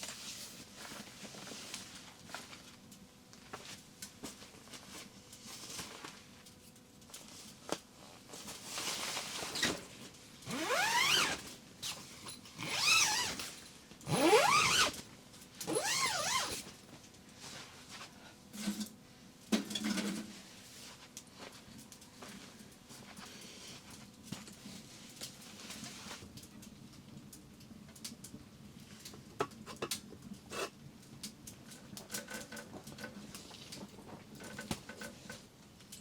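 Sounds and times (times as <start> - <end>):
zipper rasping: 10.5 - 11.4, 12.6 - 13.5, 14.1 - 15.0, 15.7 - 16.7.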